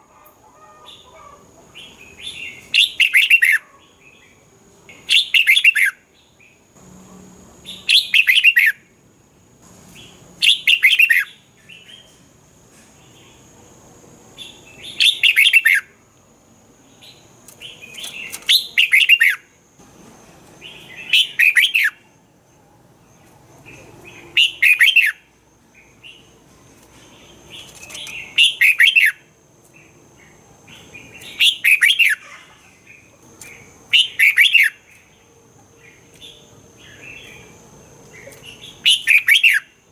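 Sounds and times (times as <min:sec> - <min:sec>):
bird singing warbling phrases: 0:01.8 - 0:06.6, 0:07.6 - 0:08.8, 0:10.0 - 0:12.2, 0:14.4 - 0:15.9, 0:17.0 - 0:19.5, 0:20.6 - 0:22.0, 0:23.6 - 0:26.3, 0:27.2 - 0:35.2, 0:35.8 - 0:39.8.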